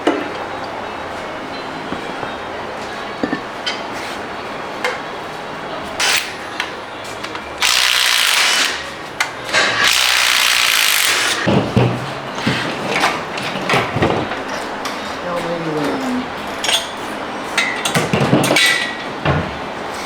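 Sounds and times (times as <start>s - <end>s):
tools and parts clinking: 3.2s - 3.9s, 9.2s - 19.0s
power tool running: 7.6s - 8.9s, 9.5s - 11.5s.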